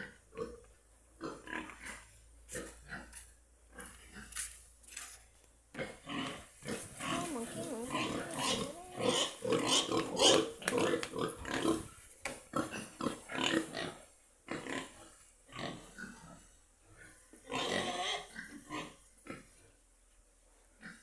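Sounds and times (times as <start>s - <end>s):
pigs grunting: 5.8s - 19.7s.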